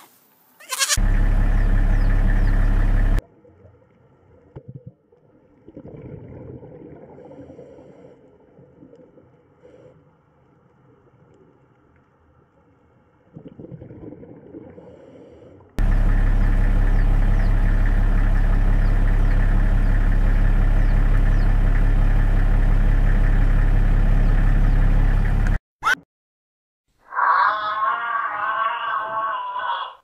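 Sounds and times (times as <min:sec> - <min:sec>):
loud steady low hum: 0:01.0 - 0:03.2, 0:15.8 - 0:25.5.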